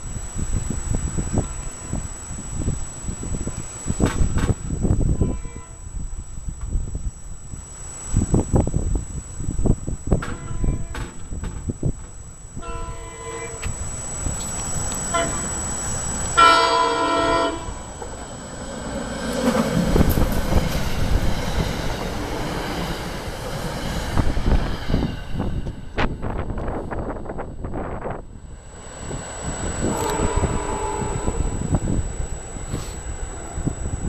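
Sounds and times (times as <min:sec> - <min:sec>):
train rumble and rail noise: 0:00.0 - 0:34.0
train horn: 0:01.3 - 0:02.2, 0:05.0 - 0:06.1, 0:10.2 - 0:11.2, 0:12.6 - 0:13.8, 0:15.0 - 0:15.7, 0:16.4 - 0:18.0, 0:29.7 - 0:33.8.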